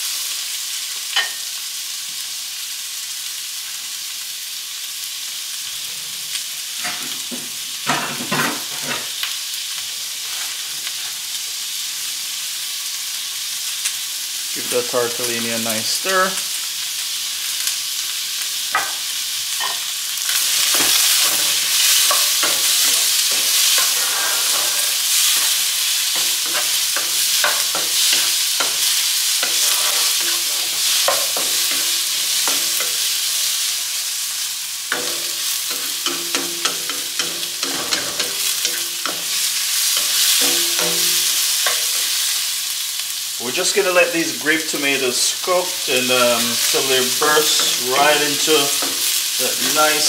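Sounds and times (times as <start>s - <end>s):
vegetables sizzling in oil: 0.0s - 50.0s
wooden spatula scraping pan: 20.4s - 32.9s.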